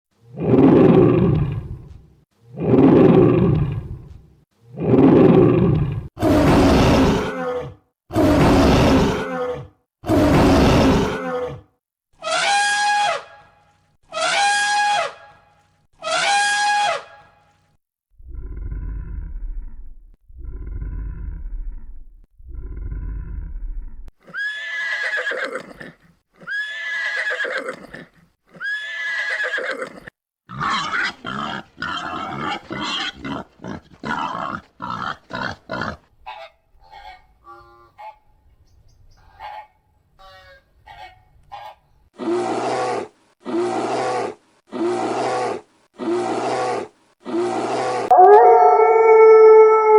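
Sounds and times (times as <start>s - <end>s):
loud harsh animal calls: 12.2s - 13.3s, 14.1s - 15.2s, 16.0s - 17.2s
falling animal calls: 47.5s - 49.9s
low animal calls: 47.6s - 49.9s.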